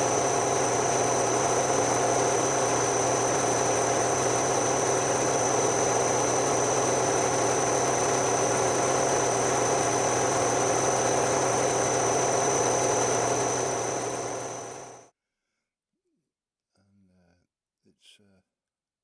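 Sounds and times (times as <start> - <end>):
machine motor whining and humming: 0.0 - 15.0.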